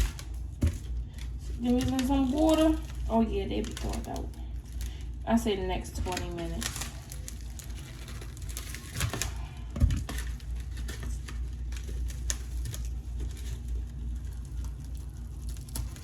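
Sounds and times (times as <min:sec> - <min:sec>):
steady low hum: 0:00.0 - 0:16.0
packaging clicks and knocks: 0:06.0 - 0:16.0.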